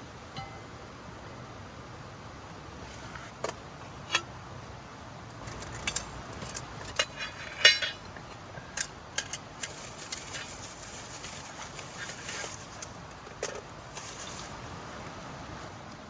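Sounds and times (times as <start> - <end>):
dishes and utensils clinking: 0.4 - 0.7.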